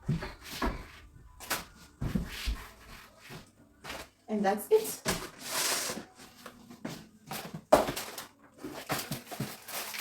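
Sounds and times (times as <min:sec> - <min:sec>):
packets rustling and scraping: 0:04.8 - 0:10.0.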